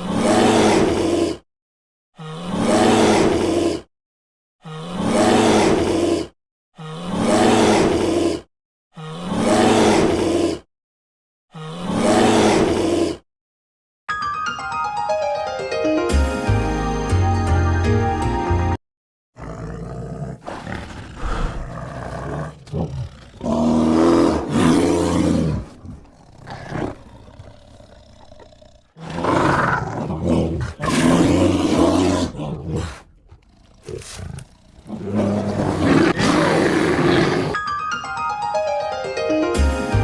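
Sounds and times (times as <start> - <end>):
bear roaring: 0.0 - 1.4, 2.2 - 3.9, 4.7 - 10.6, 11.6 - 13.2, 19.4 - 37.6
background music: 14.1 - 18.8, 37.6 - 40.0
low growling: 19.4 - 37.6.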